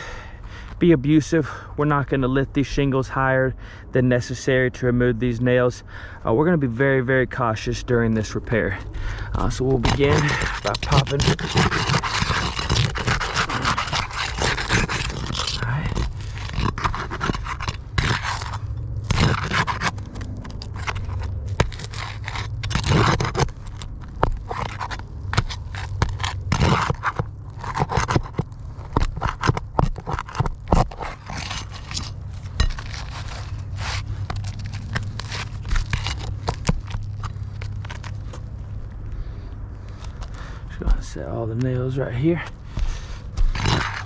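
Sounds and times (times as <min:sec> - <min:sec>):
metal bar scraping under shingles: 0:08.2 - 0:38.5, 0:42.4 - 0:44.0.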